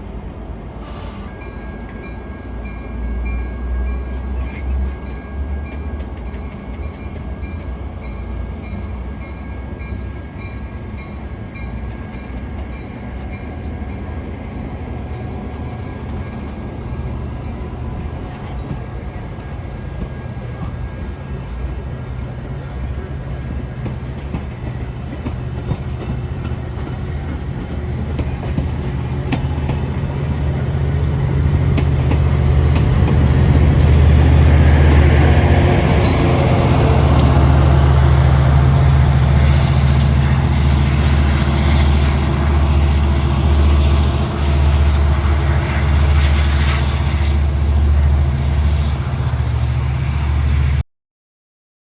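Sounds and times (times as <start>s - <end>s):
low train rumble: 0.0s - 50.8s
train wheels clicking over rail joints: 21.4s - 38.8s.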